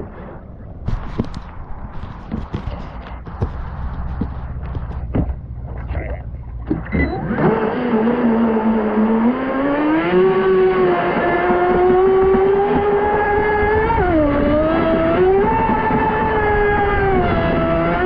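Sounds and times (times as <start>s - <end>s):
steady rush of noise: 0.0s - 6.9s
electric boat motor whining: 6.8s - 18.0s.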